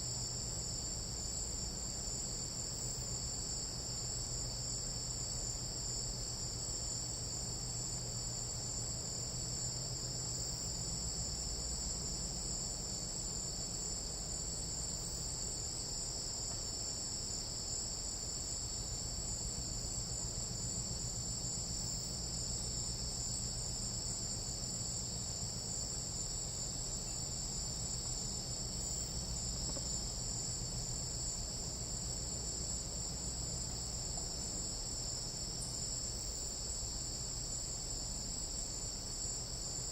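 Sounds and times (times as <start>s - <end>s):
night insects trilling: 0.0s - 39.9s.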